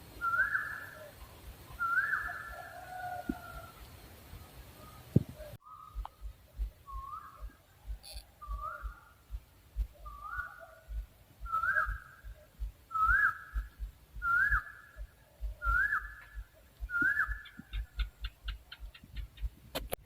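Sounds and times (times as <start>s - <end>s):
owl whistled notes: 0.2s - 1.1s, 1.7s - 3.4s, 5.6s - 9.0s, 10.0s - 10.8s, 11.4s - 18.1s.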